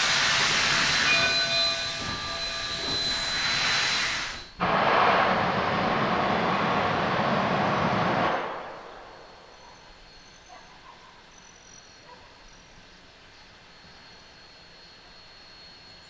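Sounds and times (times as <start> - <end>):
faint high whine: 0.0 - 6.3
steam locomotive hissing: 0.0 - 9.6.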